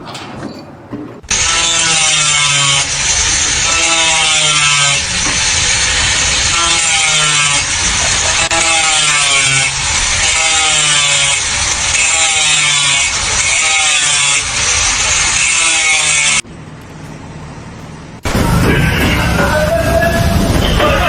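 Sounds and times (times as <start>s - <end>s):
saw cutting with rasping strokes: 1.2s - 16.4s.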